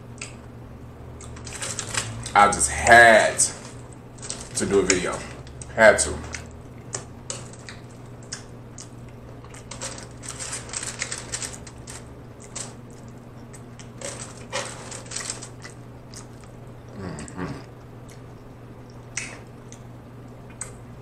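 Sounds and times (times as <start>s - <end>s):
steady low hum: 0.0s - 21.0s
person chewing with mouth smacks: 6.3s - 9.7s, 15.5s - 20.8s.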